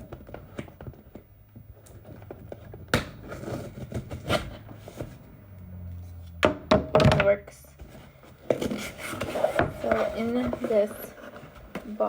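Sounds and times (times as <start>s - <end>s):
tool scraping cardboard box: 8.3s - 11.7s.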